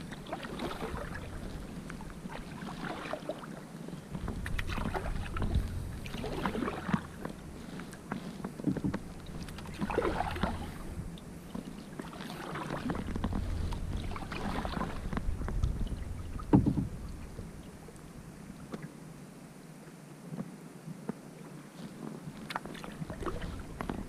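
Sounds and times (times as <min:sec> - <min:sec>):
wind rumbling on microphone: 0:00.0 - 0:19.0, 0:21.6 - 0:24.0
paddle strokes splashing water: 0:00.0 - 0:19.1, 0:20.3 - 0:24.0.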